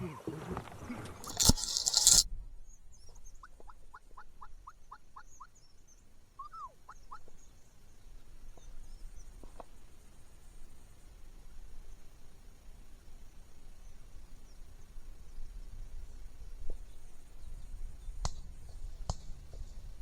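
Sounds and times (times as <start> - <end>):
small birds chirping faintly: 0.0 - 20.0
wild turkey yelping: 6.4 - 7.3.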